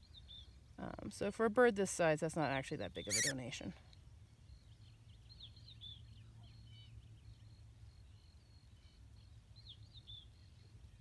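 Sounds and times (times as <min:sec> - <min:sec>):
small birds chirping: 0:03.0 - 0:03.6, 0:04.4 - 0:11.0.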